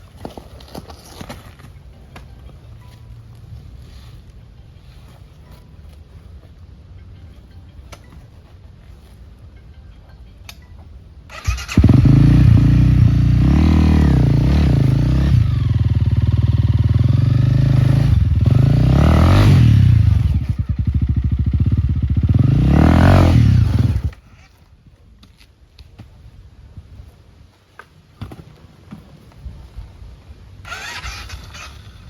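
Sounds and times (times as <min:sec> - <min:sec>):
dirt bike engine revving: 0:11.3 - 0:24.2.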